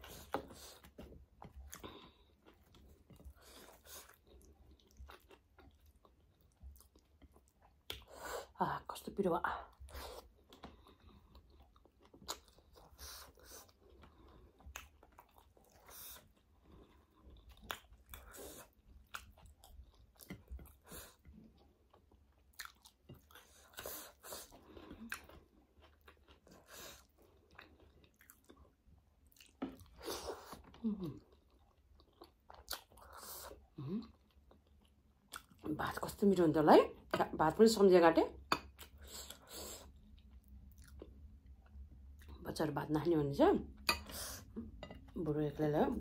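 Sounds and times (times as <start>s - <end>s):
chewing with mouth clicks: 0.0s - 8.2s, 9.7s - 35.7s, 38.4s - 42.4s.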